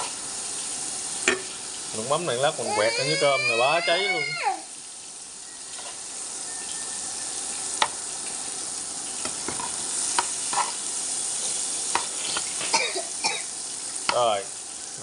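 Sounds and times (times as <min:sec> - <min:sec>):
pork sizzling in oil: 0:00.0 - 0:15.0.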